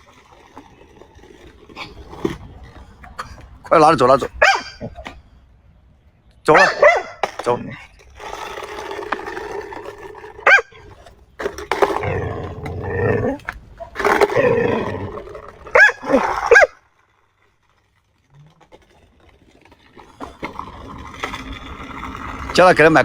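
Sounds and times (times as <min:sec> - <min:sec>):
dog growling and grumbling: 0:11.9 - 0:16.6.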